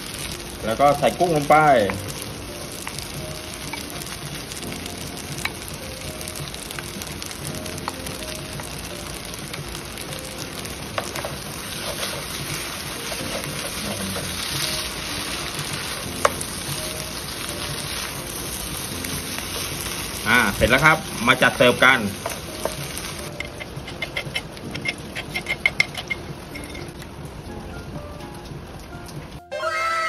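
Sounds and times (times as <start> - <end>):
food sizzling in a frying pan: 0.0 - 30.0
wooden spatula knocking pan: 21.8 - 26.4.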